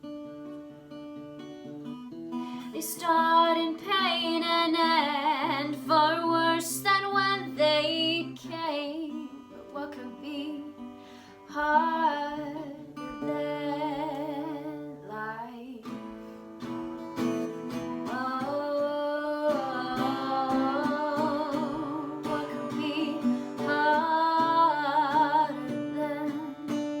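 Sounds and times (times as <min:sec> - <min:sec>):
strummed acoustic guitar: 0:00.0 - 0:27.0
person singing with vibrato: 0:18.0 - 0:27.0.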